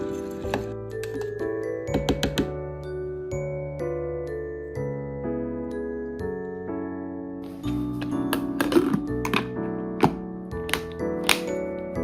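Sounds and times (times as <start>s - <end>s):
music with soft mallet tones: 0.0s - 12.0s.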